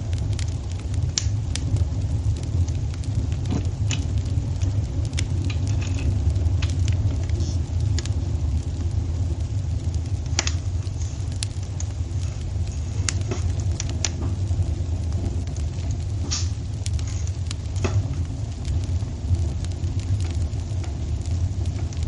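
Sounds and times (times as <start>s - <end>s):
sharp pops of fire: 0.0s - 22.0s
wood fire rumbling: 0.0s - 22.0s.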